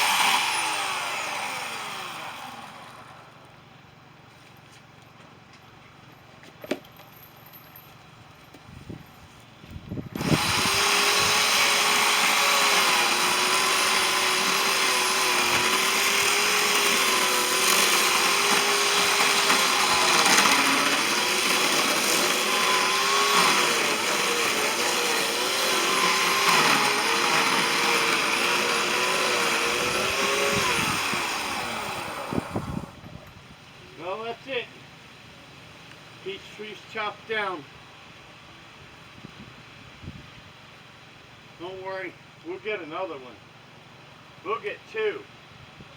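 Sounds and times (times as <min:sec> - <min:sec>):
power saw cutting wood: 0:00.0 - 0:03.5, 0:10.2 - 0:33.0.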